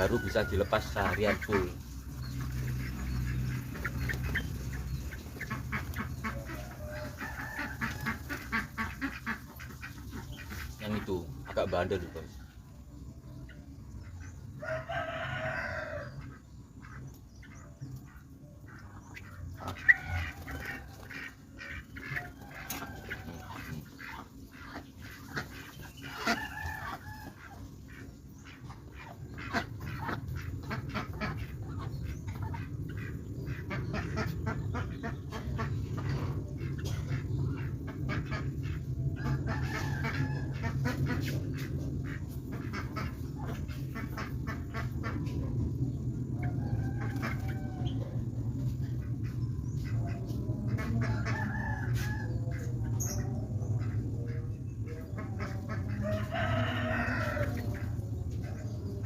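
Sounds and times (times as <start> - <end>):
rooster crowing: 0.0 - 1.0, 6.6 - 8.2, 14.6 - 16.2, 39.2 - 40.6, 46.4 - 48.2, 51.0 - 52.5, 56.0 - 57.8
fowl calls: 0.0 - 12.6, 13.3 - 59.0
steady low hum: 0.0 - 59.0.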